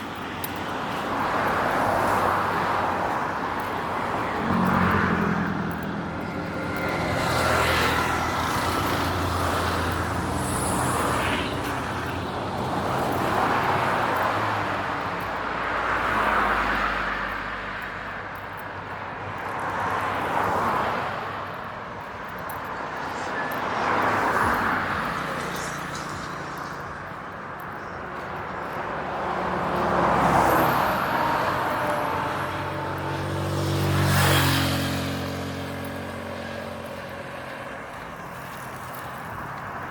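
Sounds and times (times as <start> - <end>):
cars passing: 0.0 - 39.9
loud vehicle engine passing: 4.3 - 12.2, 23.0 - 39.1.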